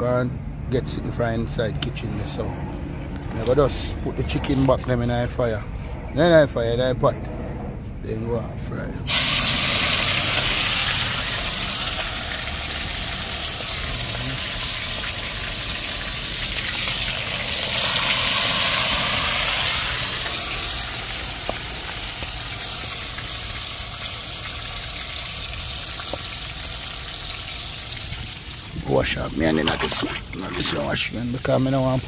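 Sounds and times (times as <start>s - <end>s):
chicken sizzling in hot oil: 9.1s - 32.0s.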